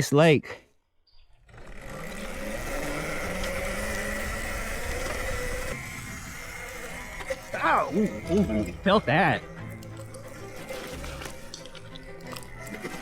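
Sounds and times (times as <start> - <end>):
wind: 0.0 - 11.1
electric motor whine: 1.2 - 13.0.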